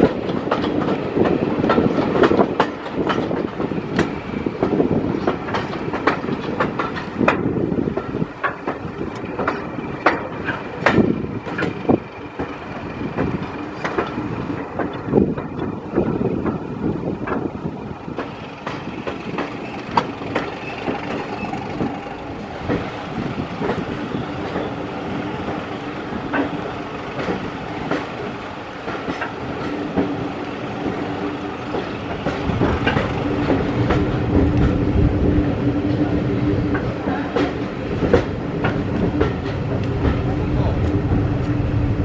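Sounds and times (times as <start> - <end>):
wheel clicks over rail joints: 0.0 - 16.6, 18.1 - 22.9, 26.2 - 31.0, 31.7 - 35.1
diesel locomotive drone: 0.0 - 42.0
train coaches rattling on track: 0.0 - 42.0.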